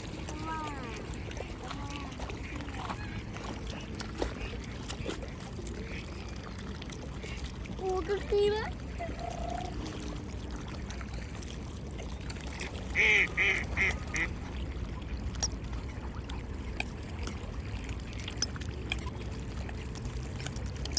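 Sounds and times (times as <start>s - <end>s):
ducks quacking: 13.0s - 14.3s.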